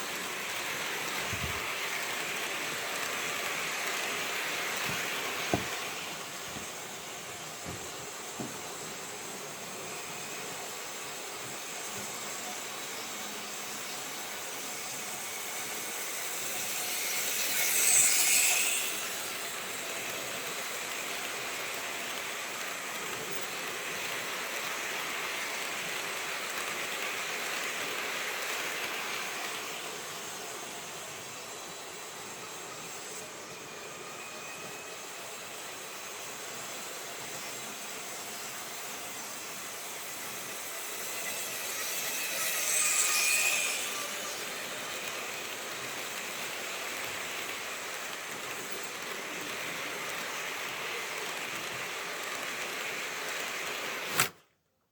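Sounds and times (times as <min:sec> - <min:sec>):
steady hiss: 0:00.0 - 0:54.4
model train running: 0:00.0 - 0:54.5.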